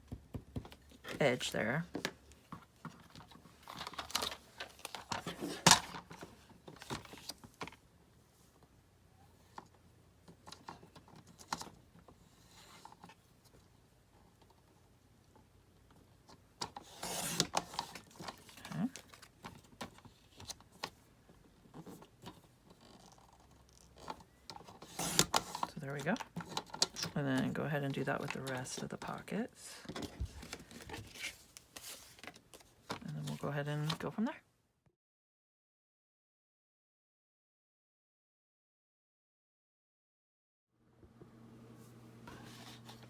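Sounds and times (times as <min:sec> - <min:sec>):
paper and cardboard handling: 0:02.4 - 0:07.8, 0:21.6 - 0:34.2, 0:42.3 - 0:43.0.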